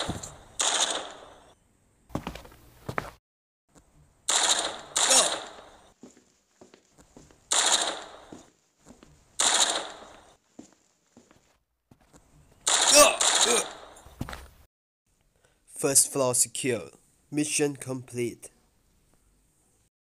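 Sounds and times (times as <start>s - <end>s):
gunshots: 0.0s - 1.6s, 4.3s - 6.0s, 7.5s - 8.5s, 9.4s - 10.4s, 12.6s - 14.0s.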